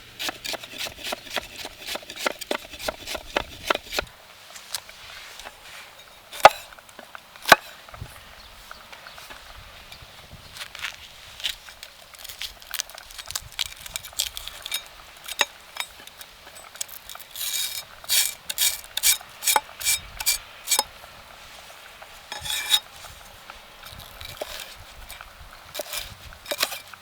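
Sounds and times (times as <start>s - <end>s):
utensils scraping: 0.2s - 4.1s, 12.1s - 20.9s, 22.3s - 27.0s.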